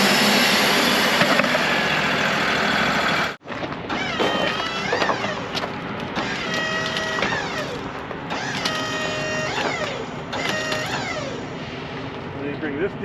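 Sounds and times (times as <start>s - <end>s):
sawmill engine running: 0.0s - 12.4s
hydraulics whining: 0.0s - 13.0s.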